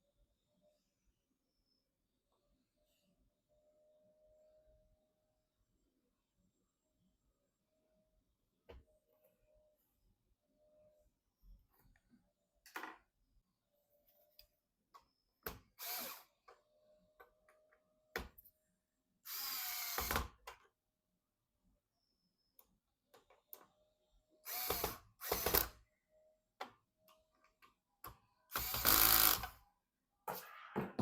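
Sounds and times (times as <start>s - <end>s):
electric screwdriver whirring: 15.8s - 16.3s, 24.5s - 25.6s, 28.5s - 29.6s.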